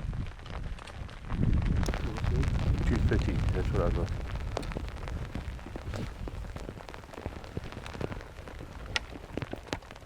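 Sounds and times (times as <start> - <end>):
rain pattering: 0.0 - 10.0
raindrops ticking close: 0.0 - 10.0.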